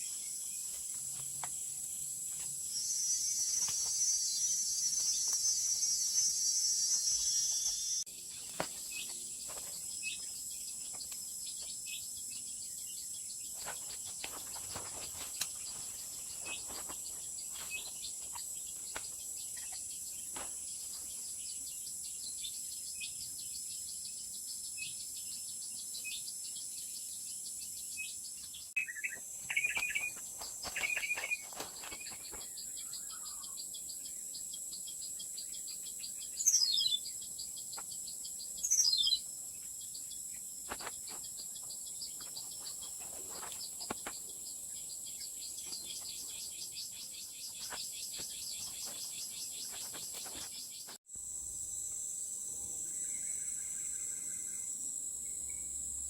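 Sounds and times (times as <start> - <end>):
birds chirping: 0.0 - 51.0
insects droning: 0.0 - 56.0.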